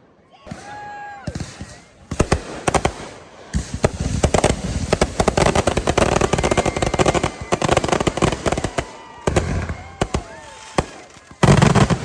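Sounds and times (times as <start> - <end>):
fireworks bangs and crackling: 0.4 - 12.0.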